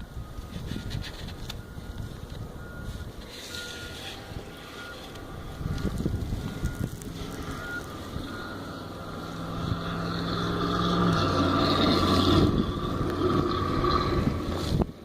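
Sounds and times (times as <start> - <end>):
pickup truck driving past: 3.6 - 14.8.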